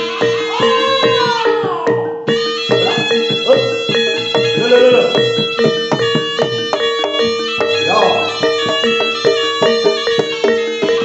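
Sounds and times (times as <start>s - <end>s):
gamelan tones: 0.0s - 11.0s
hand-drum strokes: 0.0s - 11.0s.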